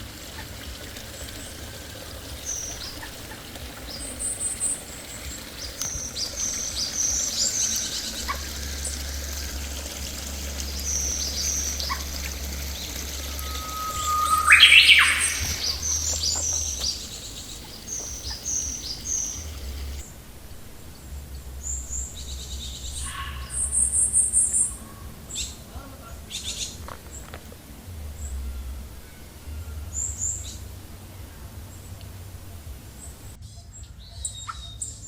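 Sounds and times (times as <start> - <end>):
fast high bird trill: 5.4 - 20.0
loud rising bird note: 6.0 - 20.0
short high bird chirps: 10.8 - 17.2.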